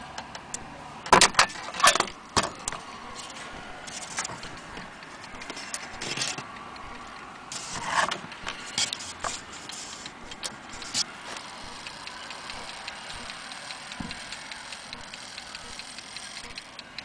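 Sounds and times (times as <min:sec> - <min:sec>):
clock clicks and metallic rattles: 0:00.1 - 0:17.0.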